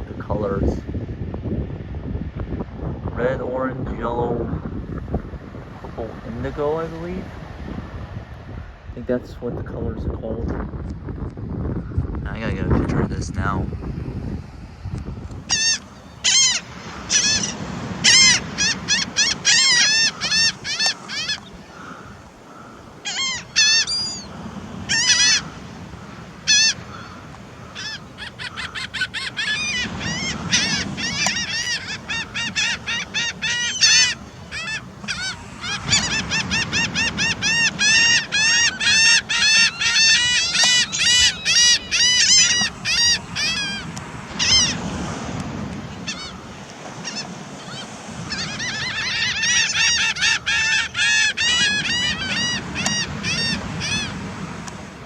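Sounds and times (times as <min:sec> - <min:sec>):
birds honking calls: 0:15.4 - 0:55.0.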